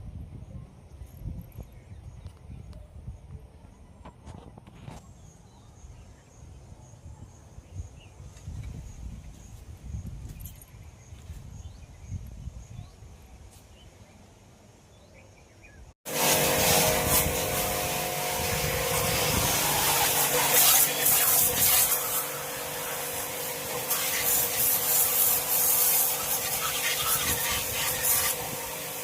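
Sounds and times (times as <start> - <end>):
faint outdoor background: 0.0 - 29.0
machine hum: 16.1 - 26.9
water jet hissing: 16.1 - 29.0.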